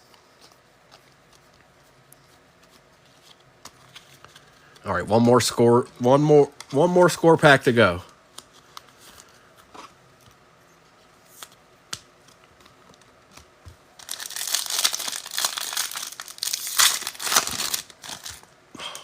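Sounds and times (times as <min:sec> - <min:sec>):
wrapper crinkling and tearing: 0:14.0 - 0:18.5.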